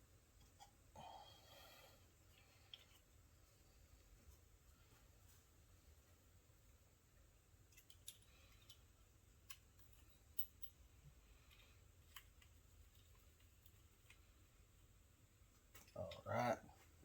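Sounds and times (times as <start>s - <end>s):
metal parts clicking: 7.7s - 8.8s.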